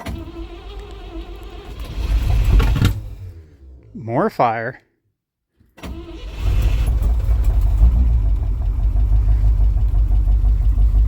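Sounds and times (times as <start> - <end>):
engine idling with low pulse: 6.8 - 11.0.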